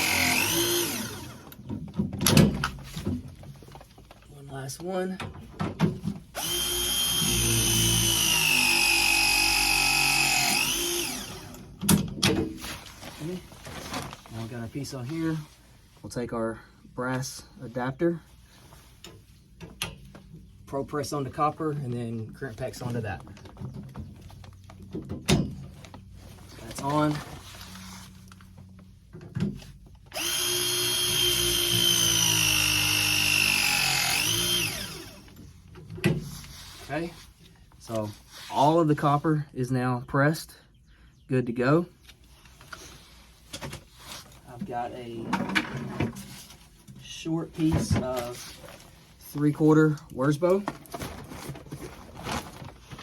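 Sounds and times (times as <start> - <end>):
press tool motor whining: 0.0 - 1.6, 6.4 - 11.7, 30.1 - 35.4.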